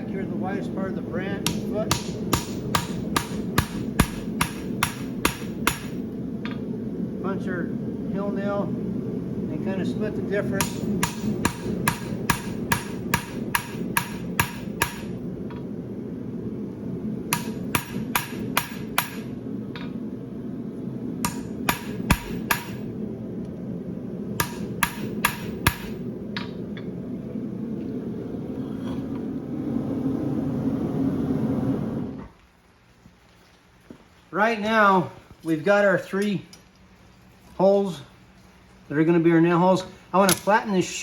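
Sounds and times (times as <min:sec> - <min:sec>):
hammer striking punch on anvil: 0:01.4 - 0:06.0, 0:10.6 - 0:15.1, 0:17.3 - 0:19.3, 0:21.2 - 0:22.8, 0:24.4 - 0:26.5
steady low roar: 0:04.8 - 0:32.4.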